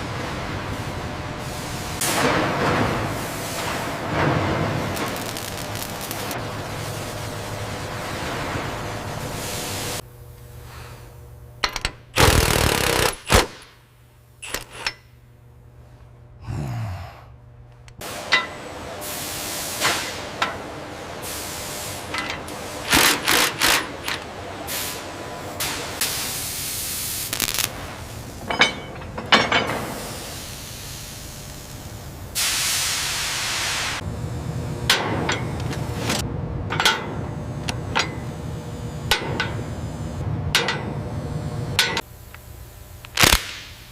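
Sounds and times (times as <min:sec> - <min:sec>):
metallic knocks and clanks: 0:36.7 - 0:37.2.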